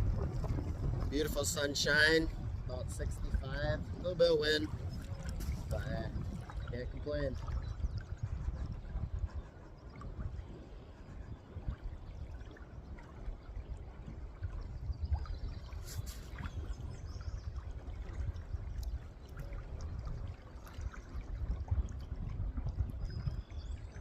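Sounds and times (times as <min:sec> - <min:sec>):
wind rumbling on microphone: 0:00.0 - 0:24.0
brief rustle: 0:15.8 - 0:16.4.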